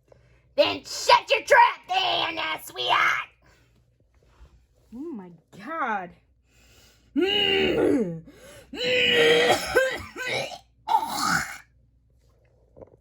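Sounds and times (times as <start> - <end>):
person hawking and coughing: 7.2 - 8.2, 8.8 - 11.6.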